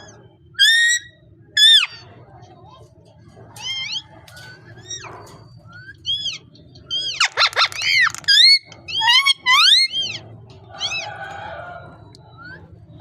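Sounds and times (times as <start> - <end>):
parrot crying: 0.6 - 2.0, 6.0 - 11.6.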